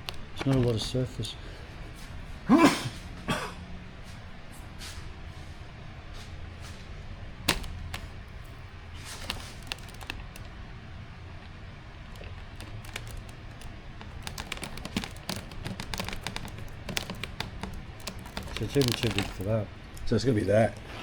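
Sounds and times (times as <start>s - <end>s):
small hardware clicking: 7.5s - 10.6s, 12.1s - 20.1s.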